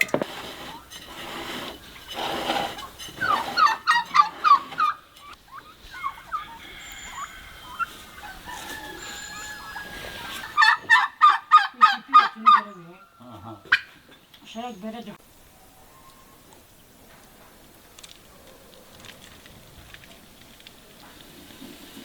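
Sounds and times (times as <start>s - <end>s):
poultry calling: 2.6s - 14.9s.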